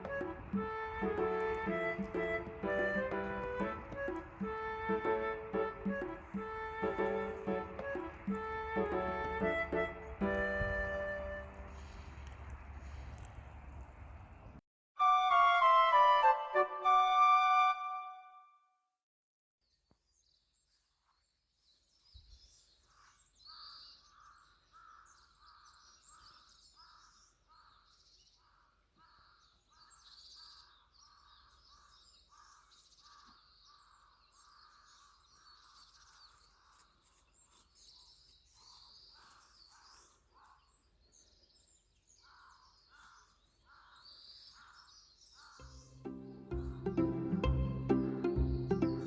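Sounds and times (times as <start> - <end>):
higher bird chirps: 0.0 - 12.3, 45.4 - 49.0.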